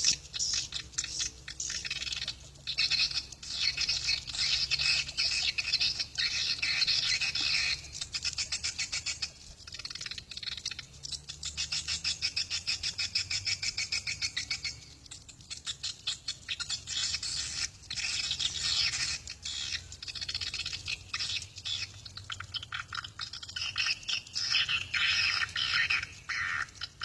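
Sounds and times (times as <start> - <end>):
swiftlets twittering: 0.0 - 27.0.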